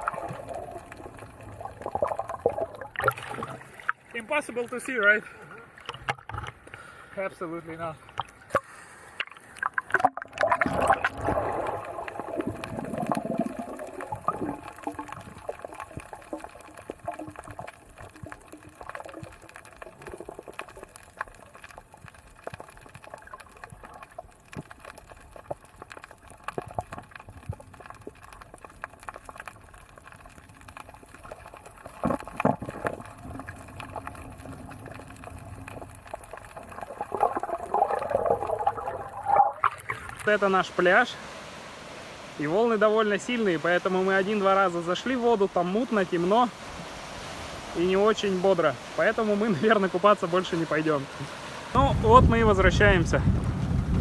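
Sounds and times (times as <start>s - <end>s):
small crackles: 0.0s - 41.9s
water sloshing and bubbling: 0.0s - 54.0s.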